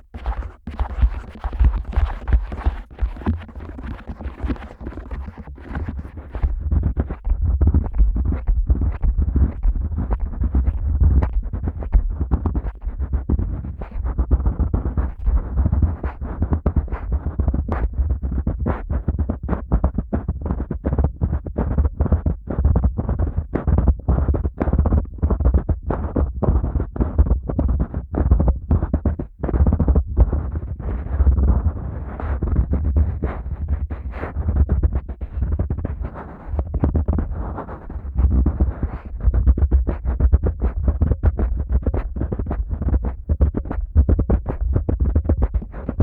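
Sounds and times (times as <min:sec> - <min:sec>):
hands rubbing microphone: 0:00.0 - 0:46.0.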